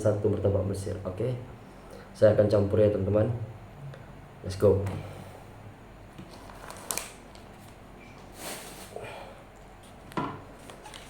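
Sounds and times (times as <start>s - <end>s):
food wrapping rustling: 6.2s - 8.9s, 9.8s - 11.0s.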